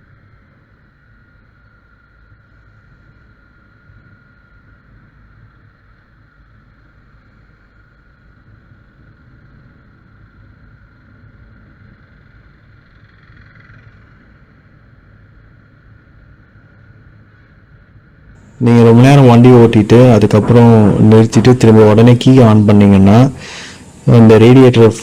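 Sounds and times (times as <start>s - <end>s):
steady high tone: 18.4s - 25.0s.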